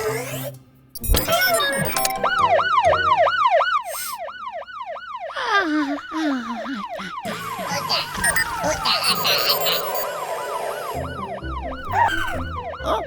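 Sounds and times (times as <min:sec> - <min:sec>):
cartoon siren wailing: 0:01.2 - 0:13.0
tone sliding downward: 0:01.6 - 0:03.8, 0:07.5 - 0:13.0.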